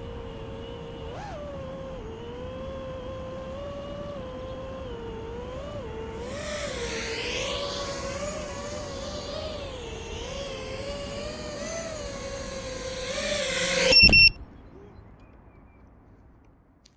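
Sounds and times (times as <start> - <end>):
quadcopter motors whining: 0.0 - 14.6
high beeps: 12.7 - 14.4.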